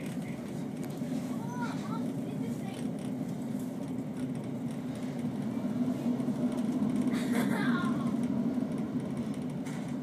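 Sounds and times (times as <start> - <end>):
train low rumble: 0.0 - 10.0.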